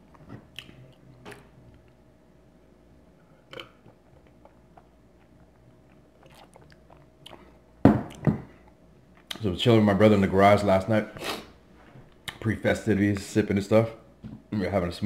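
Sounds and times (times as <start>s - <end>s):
quiet chewing: 3.4s - 9.4s.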